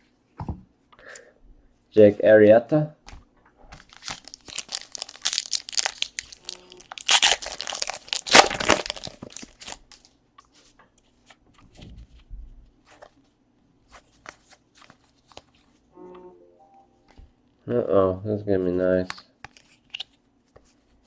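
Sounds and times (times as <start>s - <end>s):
foil wrapper tearing and crinkling: 3.8s - 10.1s
cards being handled: 13.9s - 15.8s, 19.0s - 21.0s.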